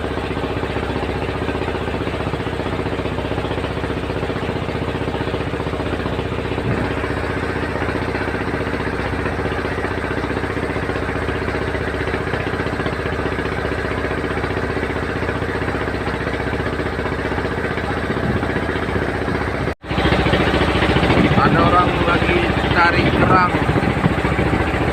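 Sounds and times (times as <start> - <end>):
boat engine running: 0.0 - 24.9.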